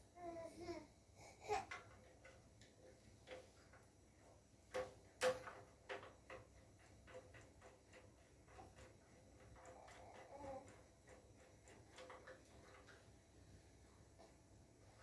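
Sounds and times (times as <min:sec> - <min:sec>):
small hard parts clicking: 0:01.5 - 0:13.2.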